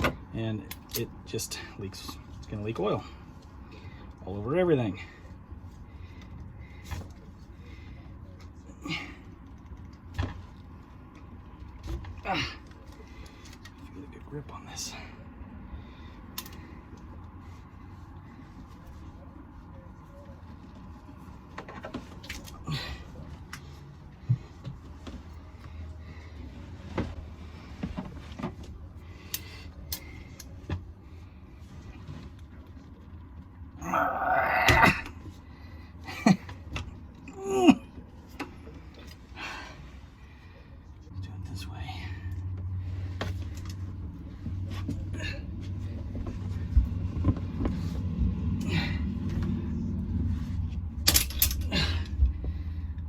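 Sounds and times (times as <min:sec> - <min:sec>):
low steady hum: 0:00.0 - 0:53.0
low rumble: 0:41.1 - 0:53.0.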